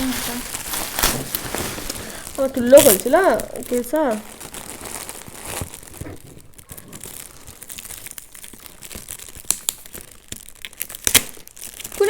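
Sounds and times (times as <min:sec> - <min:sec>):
wrapping paper tearing and crumpling: 0:00.0 - 0:12.0.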